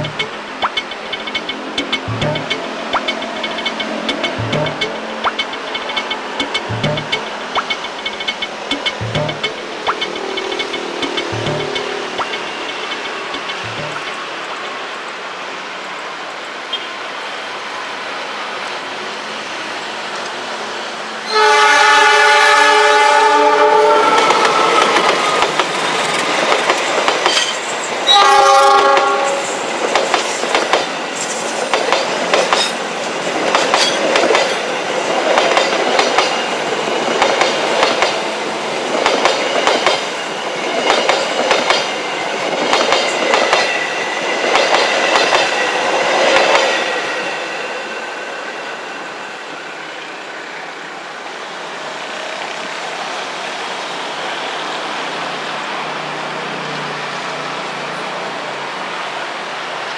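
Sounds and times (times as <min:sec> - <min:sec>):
train wheels clacking over rail joints: 0:00.0 - 0:14.2, 0:24.1 - 0:38.3, 0:38.9 - 0:43.8, 0:44.4 - 0:45.6
locomotive horn blasts: 0:21.3 - 0:24.6, 0:28.1 - 0:29.4.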